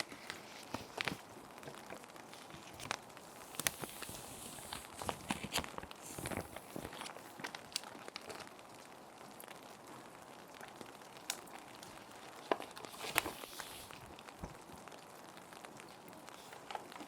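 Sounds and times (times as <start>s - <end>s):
plastic sheet protectors crinkling: 0.0s - 8.5s, 12.0s - 14.4s
rain hiss: 2.2s - 17.0s.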